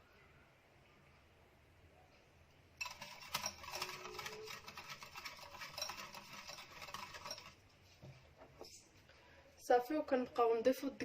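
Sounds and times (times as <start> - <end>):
electric hand mixer whirring: 2.8 - 7.4.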